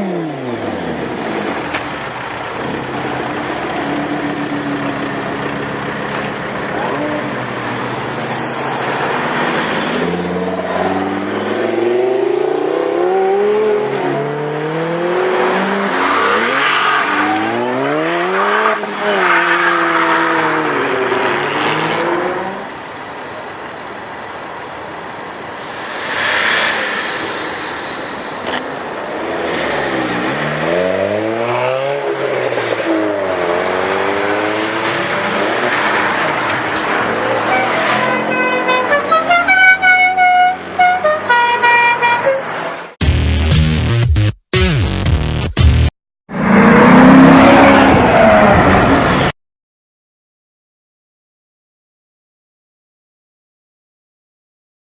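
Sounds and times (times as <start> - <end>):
car engines revving hard: 0.0 - 22.7, 28.5 - 39.4, 46.3 - 49.3.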